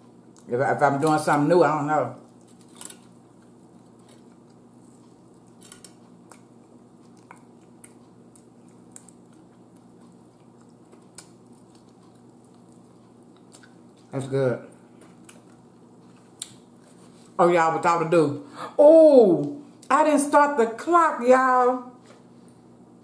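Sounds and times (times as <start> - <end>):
low steady hum: 0.0 - 23.0
person chewing chicken: 2.2 - 17.2.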